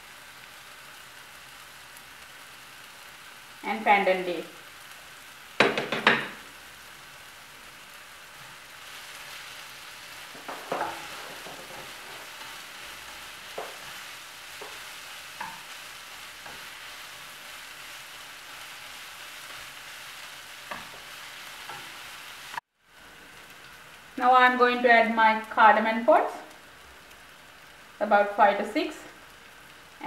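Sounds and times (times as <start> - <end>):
onion sizzling in hot oil: 0.0 - 30.0.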